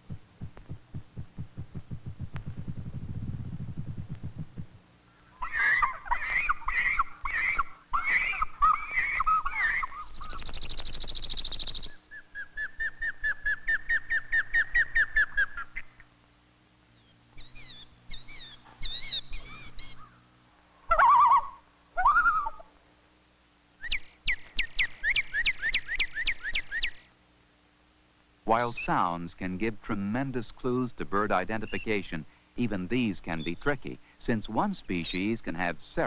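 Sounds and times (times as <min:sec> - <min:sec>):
bird songs and calls: 0:00.0 - 0:16.1, 0:16.9 - 0:20.3, 0:23.8 - 0:27.1, 0:30.5 - 0:35.6.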